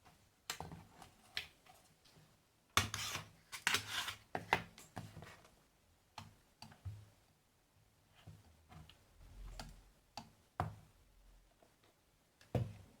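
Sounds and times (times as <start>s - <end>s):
tools scraping and rubbing: 2.8s - 4.2s.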